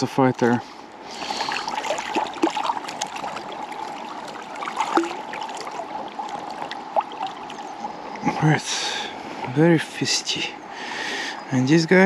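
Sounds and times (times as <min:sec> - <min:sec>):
river water trickling: 0:00.0 - 0:12.0
fish splashing: 0:00.9 - 0:08.1.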